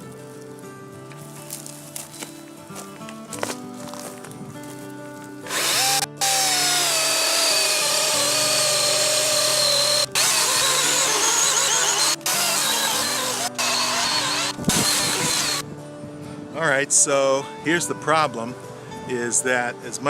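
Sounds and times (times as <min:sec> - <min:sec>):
chainsaw cutting into tree: 0:05.5 - 0:15.6.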